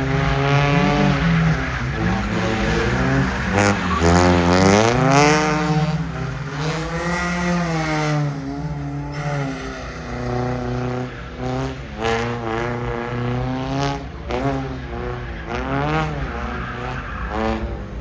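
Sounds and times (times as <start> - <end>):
car engine revving hard: 0.0 - 17.9.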